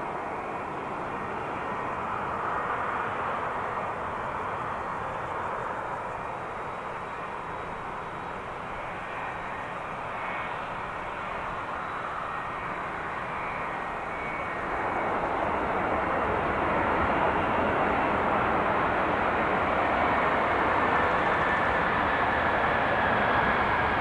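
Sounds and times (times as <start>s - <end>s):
jet engines rushing: 0.0s - 24.0s.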